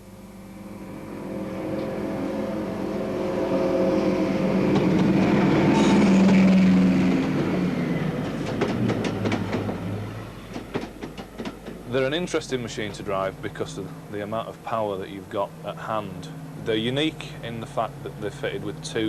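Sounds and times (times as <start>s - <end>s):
diesel locomotive engines droning: 0.0s - 19.0s
wheels clicking over rail joints: 4.7s - 14.0s.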